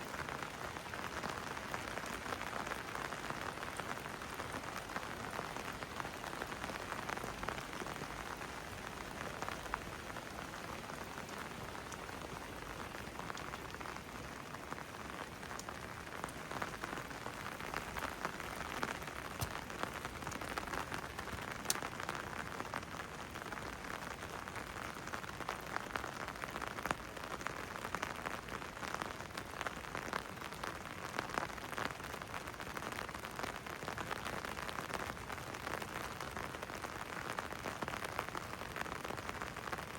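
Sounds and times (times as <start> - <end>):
steady rain falling: 0.0 - 39.9
raindrops ticking: 0.1 - 24.8.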